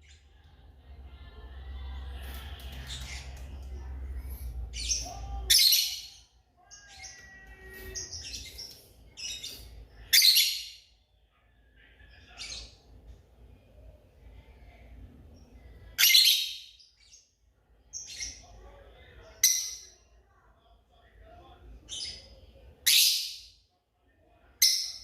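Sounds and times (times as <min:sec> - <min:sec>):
lovebirds chirping: 0:01.8 - 0:11.0.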